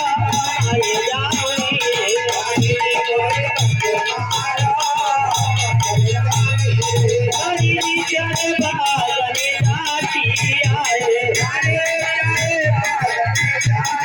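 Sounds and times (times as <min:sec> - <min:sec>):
wavering melody: 0:03.8 - 0:08.9
low drum beat: 0:04.3 - 0:08.9.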